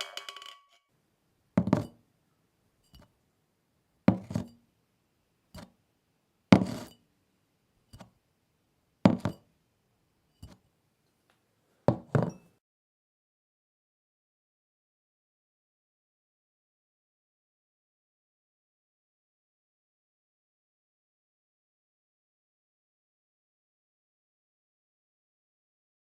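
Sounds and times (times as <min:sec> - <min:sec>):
kitchen object knocks: 0:00.0 - 0:00.7, 0:01.6 - 0:02.0, 0:04.1 - 0:04.5, 0:06.6 - 0:06.9, 0:09.1 - 0:09.4, 0:11.9 - 0:12.5.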